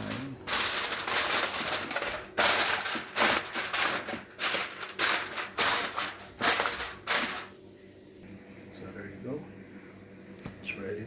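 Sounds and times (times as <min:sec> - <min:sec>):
aluminium foil crinkling: 0:00.0 - 0:07.6.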